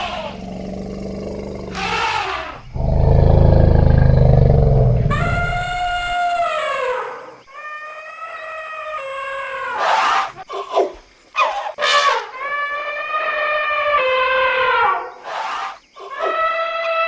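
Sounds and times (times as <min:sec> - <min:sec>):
elephants trumpeting: 0:00.0 - 0:06.8.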